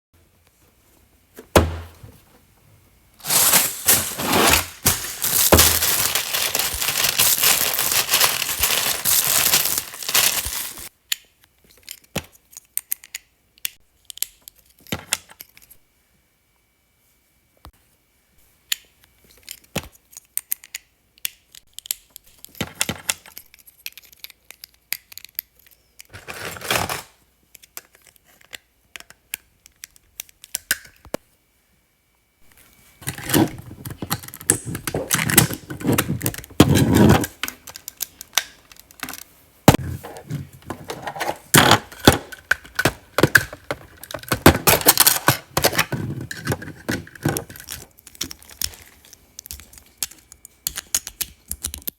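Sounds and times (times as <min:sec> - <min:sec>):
plastic parts clicking and rattling: 0:03.3 - 0:10.9, 0:19.2 - 0:31.2, 0:33.0 - 0:51.9.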